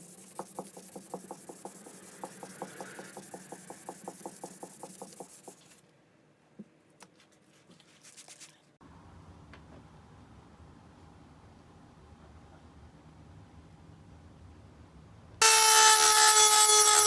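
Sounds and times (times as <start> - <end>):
rapid rhythmic rubbing: 0.0 - 5.7.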